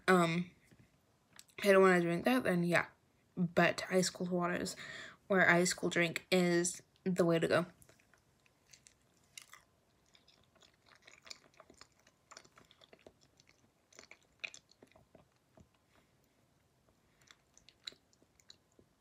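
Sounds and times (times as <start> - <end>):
person chewing banana: 7.8 - 19.0.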